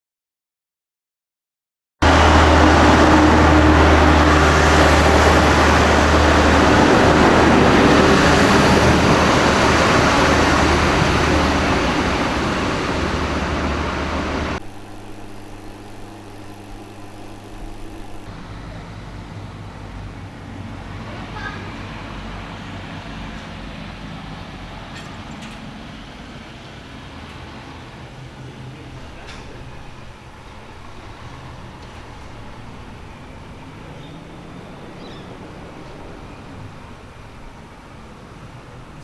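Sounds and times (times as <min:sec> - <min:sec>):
steady low hum: 0:02.0 - 0:24.8, 0:27.7 - 0:39.0
train rushing and rumbling: 0:02.0 - 0:39.0.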